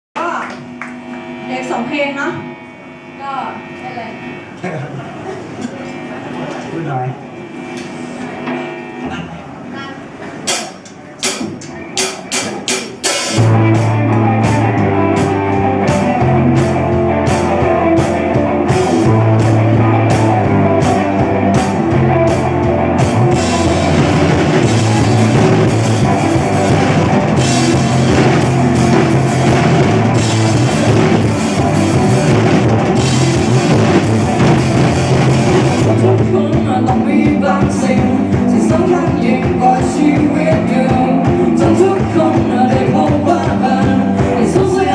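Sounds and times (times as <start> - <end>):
rock band playing: 0.2 - 4.6, 10.0 - 44.9
drum hits: 10.5 - 37.8.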